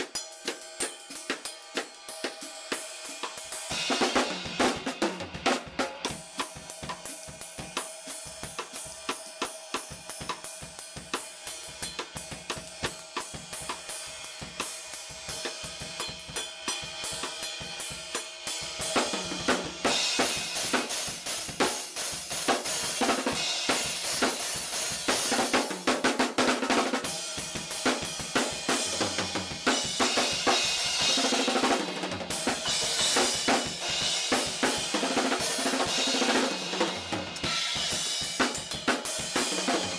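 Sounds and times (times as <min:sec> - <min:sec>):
drum kit groove: 0:00.0 - 0:39.9
cymbal crashes: 0:32.2 - 0:39.9.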